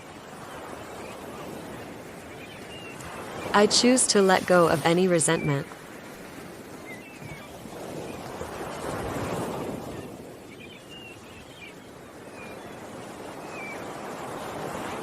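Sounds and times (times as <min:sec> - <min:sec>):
ocean waves washing in: 0:00.0 - 0:15.0
small birds chirping: 0:00.4 - 0:05.7, 0:10.5 - 0:13.9.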